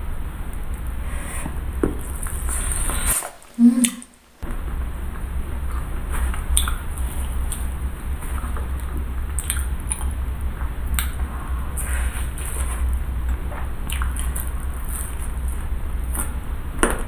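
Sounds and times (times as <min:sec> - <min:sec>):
low steady hum: 0:00.0 - 0:17.0
chewing and wet mouth sounds: 0:05.6 - 0:17.0.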